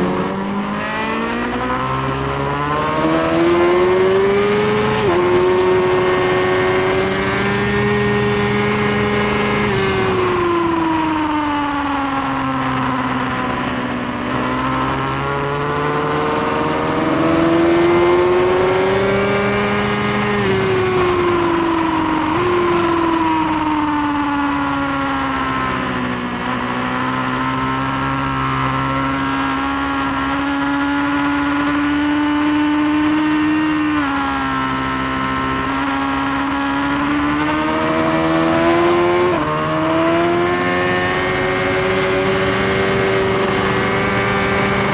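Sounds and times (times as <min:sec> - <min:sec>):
motorcycle engine running hard: 0:00.0 - 0:44.9
wind noise: 0:01.4 - 0:28.9.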